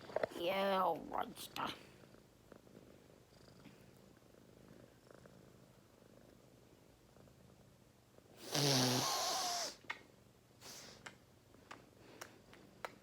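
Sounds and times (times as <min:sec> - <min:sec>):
cat purring: 0:00.0 - 0:09.8.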